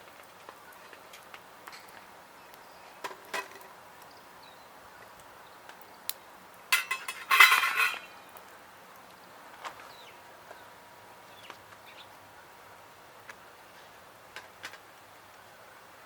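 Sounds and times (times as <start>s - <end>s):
cutlery and cookware clinking: 6.7s - 8.1s.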